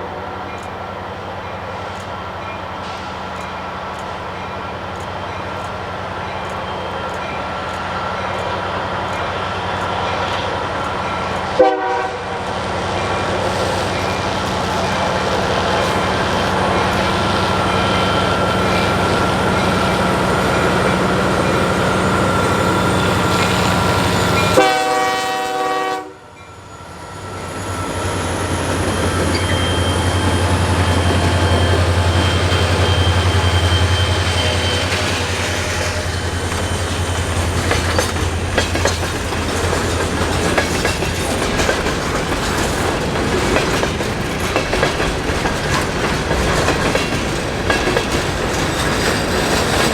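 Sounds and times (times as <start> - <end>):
diesel locomotive engine throb: 0.0 - 49.9
train rumble: 0.0 - 49.9
train wheels clicking over rail joints: 0.5 - 25.0, 27.0 - 49.9
train horn blast: 11.5 - 12.6, 22.5 - 26.4.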